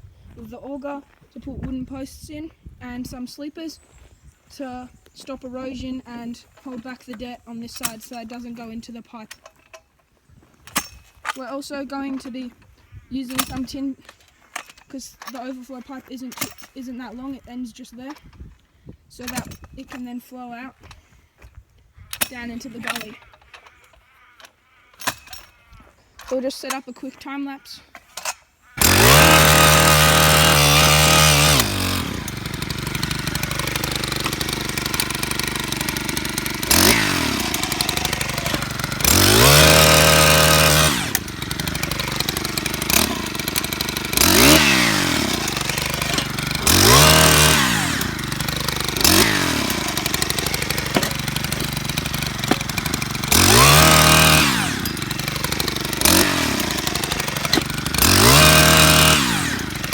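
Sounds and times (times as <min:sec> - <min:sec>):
small petrol engine revving: 0:28.8 - 0:59.9.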